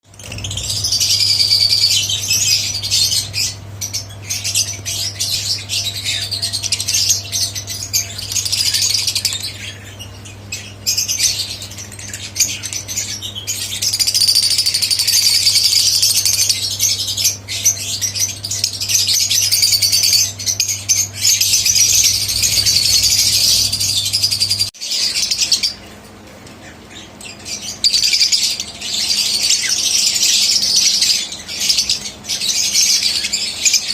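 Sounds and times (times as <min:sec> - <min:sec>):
low steady hum: 0:00.1 - 0:24.7
pet birds chattering and calling: 0:00.1 - 0:33.9.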